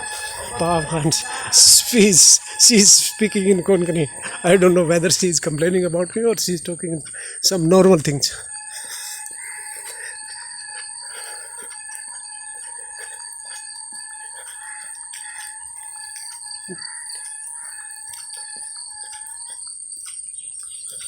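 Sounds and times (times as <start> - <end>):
rooster crowing: 0.0 - 5.6, 8.5 - 11.0
chickens calling: 0.0 - 11.8
high-pitched ringing tones: 0.0 - 21.0.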